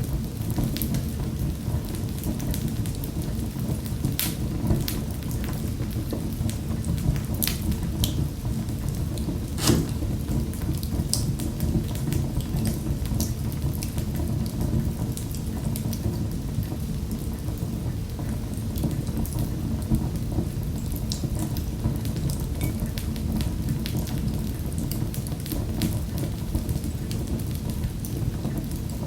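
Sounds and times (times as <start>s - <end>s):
fire popping and snapping: 4.1s - 4.6s, 9.4s - 11.2s.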